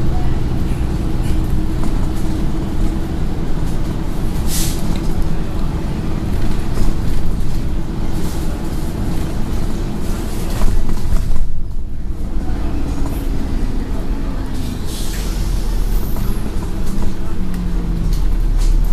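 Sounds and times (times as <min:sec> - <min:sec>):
bus diesel engine running: 0:00.0 - 0:18.9
road rumble: 0:00.0 - 0:18.9
air hiss: 0:14.6 - 0:16.0.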